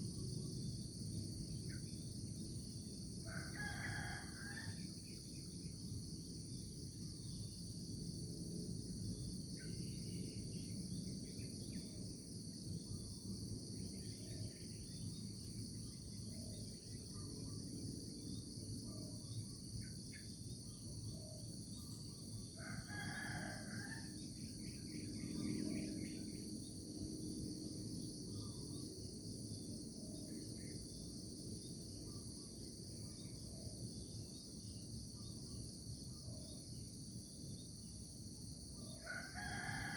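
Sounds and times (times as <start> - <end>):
insects chorus: 0.0 - 39.9
rooster crowing: 3.3 - 4.8, 22.6 - 24.1, 39.0 - 39.9.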